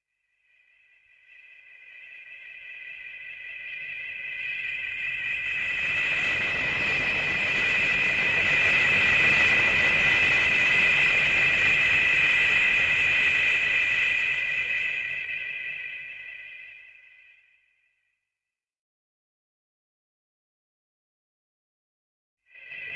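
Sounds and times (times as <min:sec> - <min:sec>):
high whistling whine: 0:00.6 - 0:17.8.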